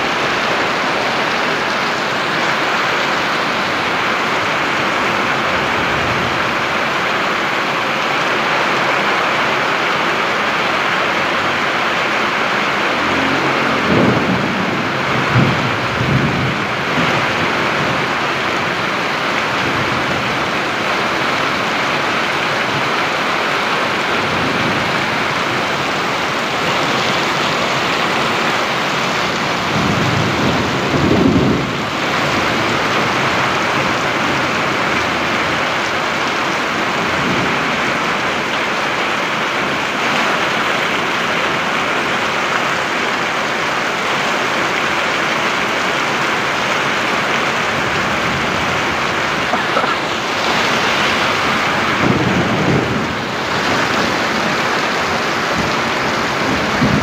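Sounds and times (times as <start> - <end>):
low rumble: 12.4 - 16.9.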